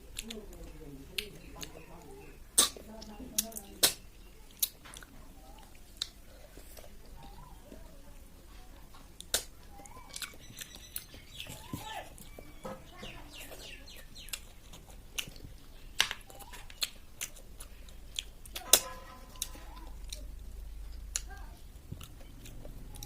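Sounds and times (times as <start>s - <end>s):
wet chewing and sucking: 0.0s - 8.0s, 8.9s - 23.0s
sharp mouth clicks and smacks: 2.6s - 7.0s, 9.2s - 11.2s, 13.9s - 20.2s.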